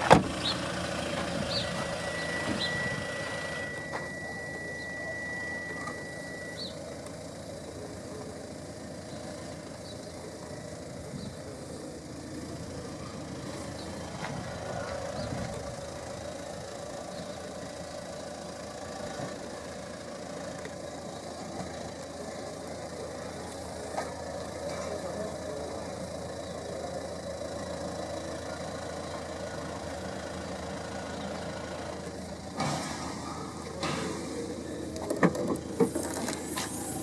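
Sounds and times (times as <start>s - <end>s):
diesel engine idling: 0.0s - 37.0s
high steady beep: 1.5s - 6.8s.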